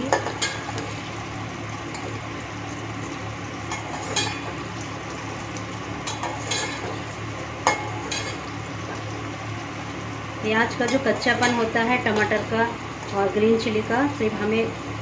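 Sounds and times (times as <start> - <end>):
soft sizzle of frying vegetables: 0.0 - 15.0.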